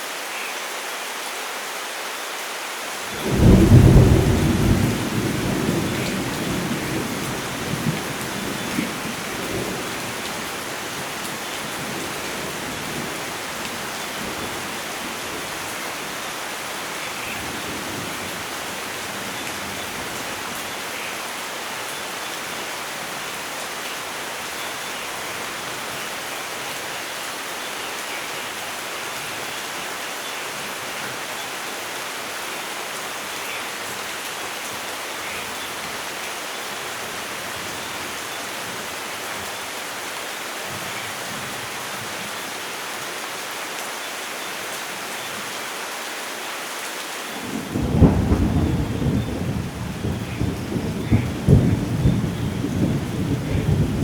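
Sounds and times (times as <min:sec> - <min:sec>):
steady rain falling: 0:00.0 - 0:54.0
low thunder rumble: 0:03.2 - 0:10.2, 0:47.4 - 0:54.0.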